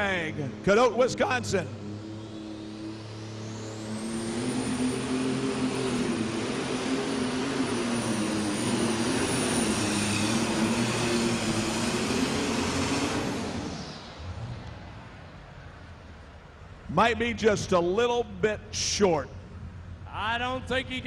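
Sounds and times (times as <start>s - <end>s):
high engine whine: 0.0s - 21.0s
tractor engine running under load: 3.4s - 14.0s.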